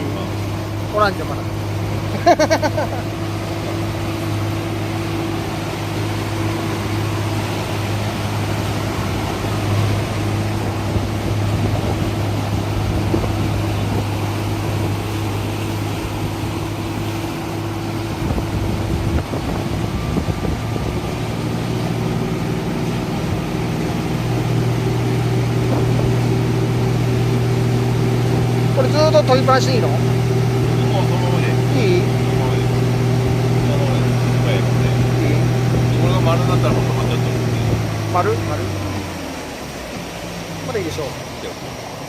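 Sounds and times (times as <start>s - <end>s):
motorboat engine idling: 0.0s - 42.0s.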